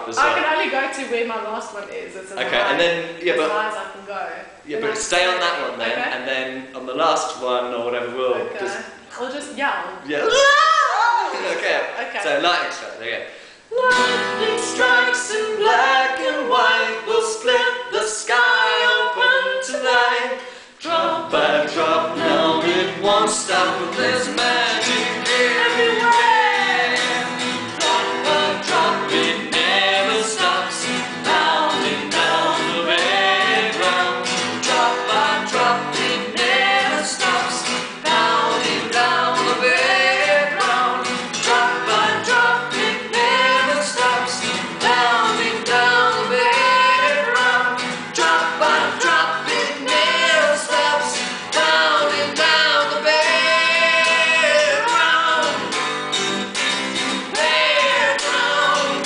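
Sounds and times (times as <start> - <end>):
woman and man singing in harmony: 0.0 - 1.1, 2.3 - 3.6, 13.4 - 55.9, 57.1 - 59.0.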